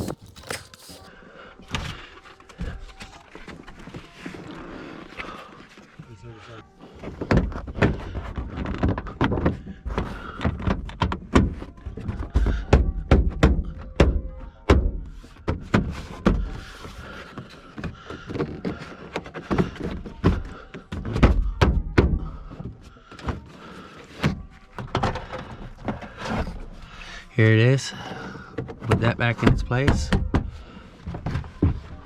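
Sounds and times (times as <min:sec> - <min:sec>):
brief rustle: 0:00.0 - 0:01.1.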